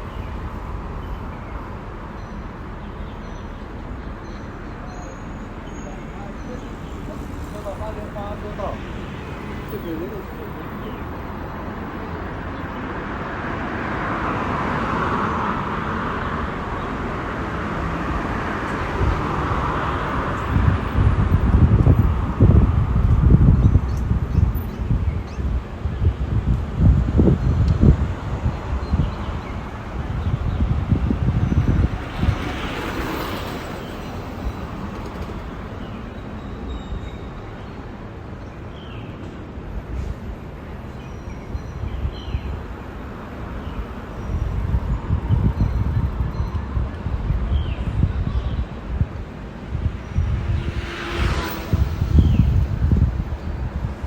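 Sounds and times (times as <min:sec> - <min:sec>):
road traffic rushing hiss: 0:00.0 - 0:46.0, 0:46.7 - 0:54.0
low rumbling gusts: 0:03.6 - 0:40.9, 0:41.5 - 0:54.0
wind buffeting microphone: 0:05.5 - 0:38.3, 0:41.2 - 0:54.0
rushing noise: 0:43.1 - 0:54.0.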